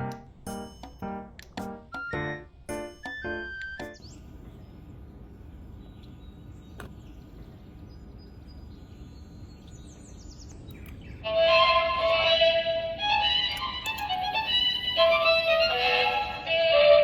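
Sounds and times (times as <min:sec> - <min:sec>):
music: 0:00.0 - 0:04.0, 0:11.3 - 0:17.0
outdoor background noise: 0:00.0 - 0:17.0
faint high bird chirps: 0:02.0 - 0:11.3.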